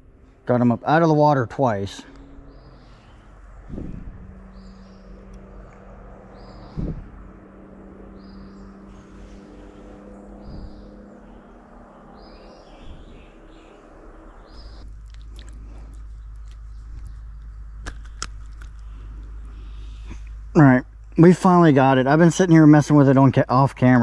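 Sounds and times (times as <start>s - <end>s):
steady low hum: 0.0s - 24.0s
bird calling: 0.6s - 21.0s
sharp clicks: 14.9s - 19.4s.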